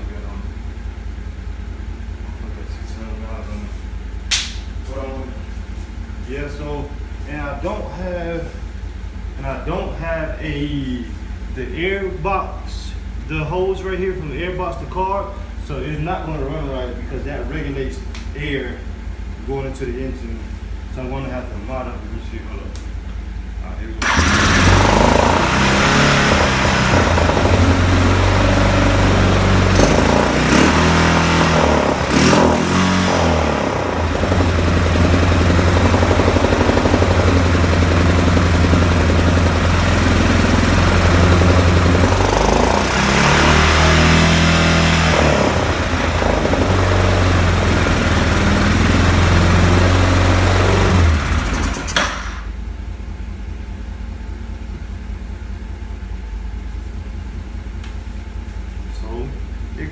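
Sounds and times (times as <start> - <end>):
atv engine revving: 24.0 - 52.6.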